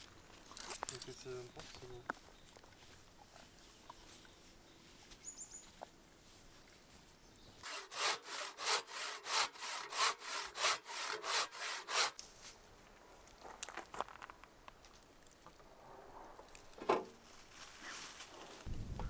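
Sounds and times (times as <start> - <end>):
hand tool scraping wood: 7.6 - 12.2.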